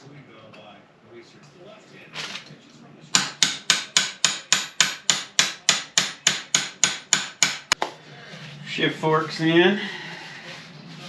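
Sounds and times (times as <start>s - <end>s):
hammer tapping metal: 3.2s - 7.8s.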